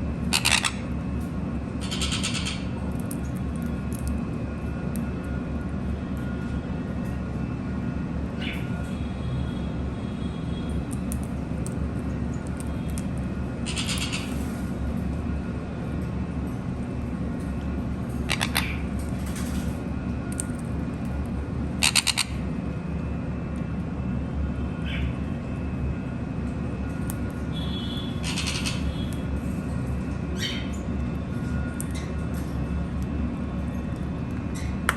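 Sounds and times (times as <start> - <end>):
steady low hum: 0.0 - 34.9
parrots squawking: 0.3 - 0.9, 1.8 - 2.7, 13.6 - 14.4, 18.3 - 18.9, 21.8 - 22.4, 28.1 - 29.1.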